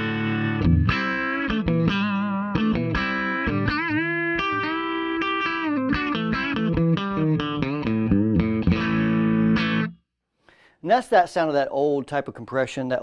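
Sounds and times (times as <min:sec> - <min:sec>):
compressed electric guitar: 0:00.0 - 0:10.0.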